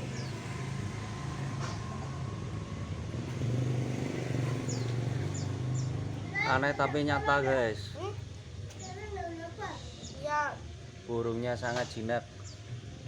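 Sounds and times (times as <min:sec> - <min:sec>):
vehicle engine humming: 0:00.0 - 0:09.6.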